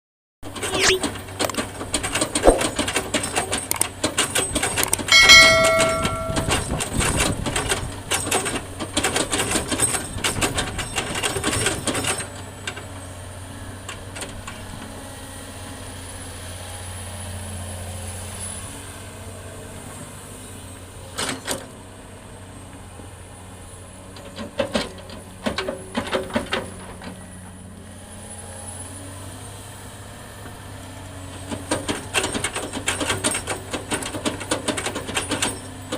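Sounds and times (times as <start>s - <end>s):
short high tone: 0.7s - 1.1s, 5.1s - 6.8s
metal clanks: 4.9s - 7.0s.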